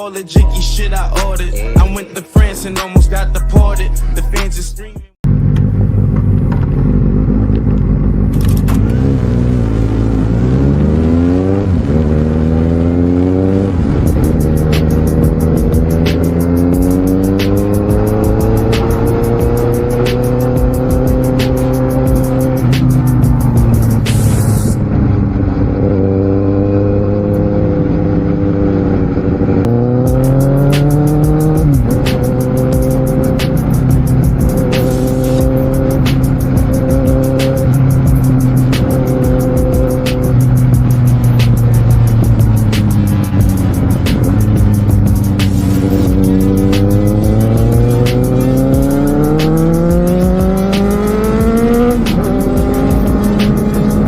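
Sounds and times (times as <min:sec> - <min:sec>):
music with ticking beat: 0:00.0 - 0:05.2, 0:13.4 - 0:24.8, 0:29.7 - 0:54.0
motorcycle engine accelerating: 0:05.2 - 0:54.0.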